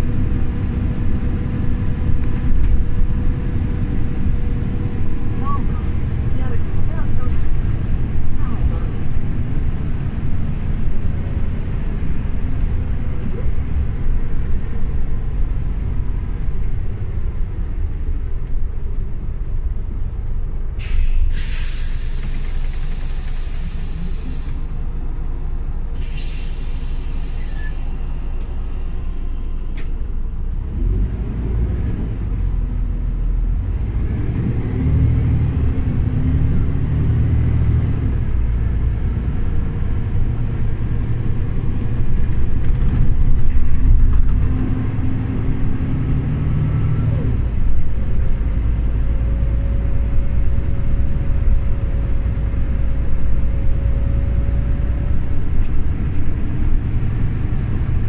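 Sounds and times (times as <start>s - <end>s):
bus engine rumbling: 0.0s - 58.0s
compressed air hissing: 20.8s - 24.8s, 26.0s - 27.8s.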